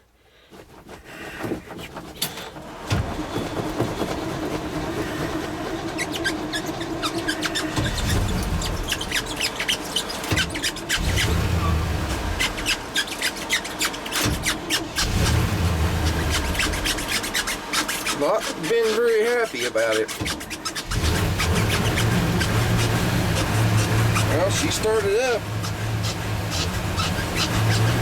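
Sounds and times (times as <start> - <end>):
starter cranking engine: 0.4 - 28.0
engine firing in rough bursts: 2.2 - 28.0.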